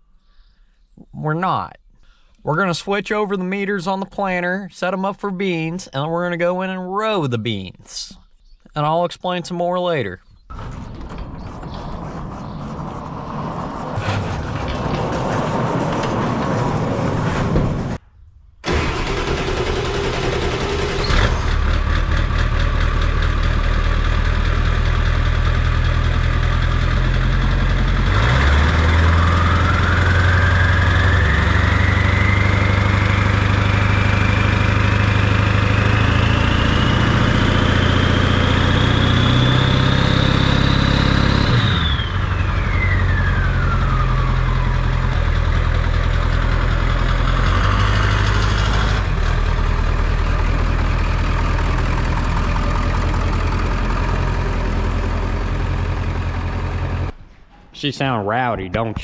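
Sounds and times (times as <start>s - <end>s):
tractor diesel engine running: 10.3s - 18.0s, 18.6s - 57.2s
high whine: 10.5s - 19.6s.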